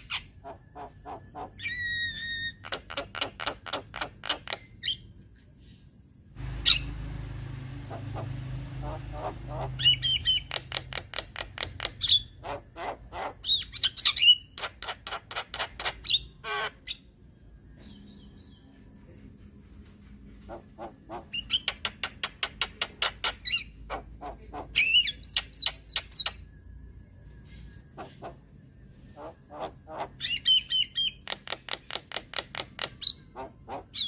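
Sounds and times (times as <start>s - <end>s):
low rumble: 6.4s - 10.8s.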